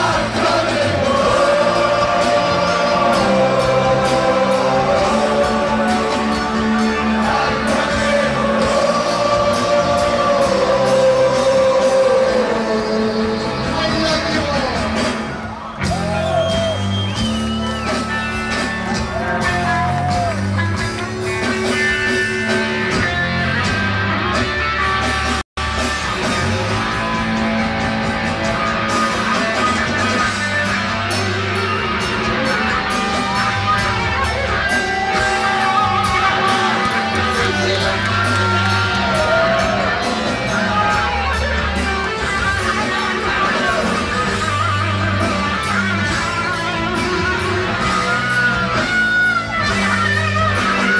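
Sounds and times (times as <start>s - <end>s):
electric guitar: 0.0s - 50.9s
rock band playing live: 0.0s - 50.9s.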